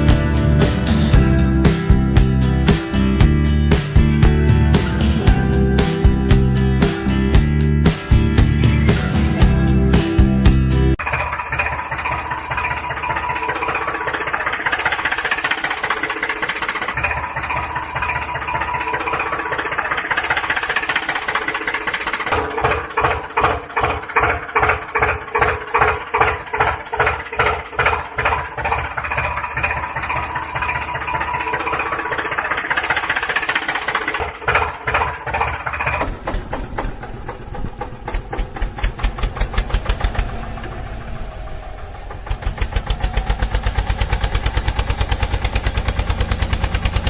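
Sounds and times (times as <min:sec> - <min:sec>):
tractor motor chugging: 0:00.0 - 0:47.0.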